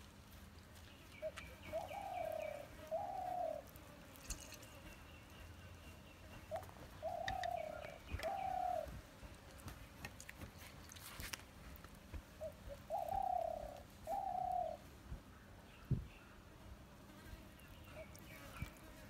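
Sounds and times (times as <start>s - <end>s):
bird calling low notes: 6.4s - 8.9s.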